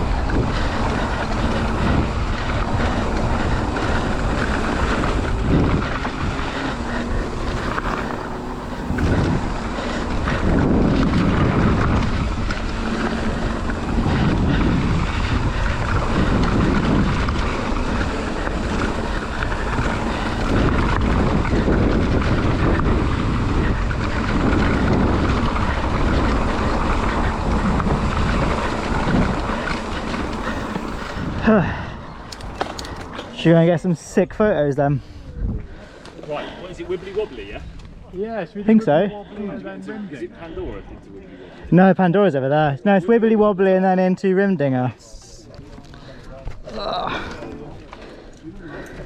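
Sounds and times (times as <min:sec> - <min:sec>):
wind on microphone: 0:00.0 - 0:33.4, 0:34.9 - 0:36.0
bike tyres rolling on trail: 0:00.0 - 0:49.0.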